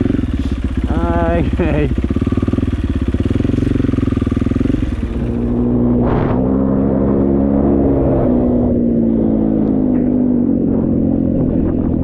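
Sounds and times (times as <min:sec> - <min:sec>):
dirt bike engine running: 0:00.0 - 0:12.0
brief rushing noise: 0:05.9 - 0:06.8.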